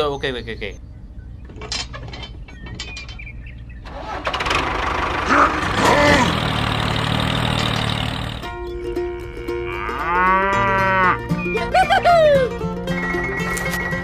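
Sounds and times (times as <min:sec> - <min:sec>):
engine starting and running: 0:01.4 - 0:08.7.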